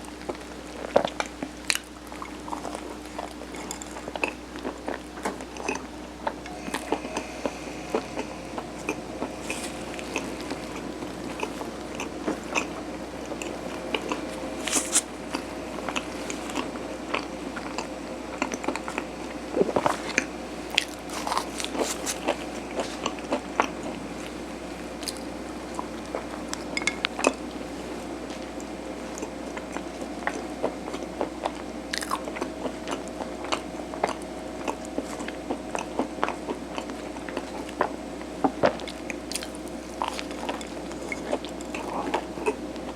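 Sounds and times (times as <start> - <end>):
low room hum: 0.0 - 42.9.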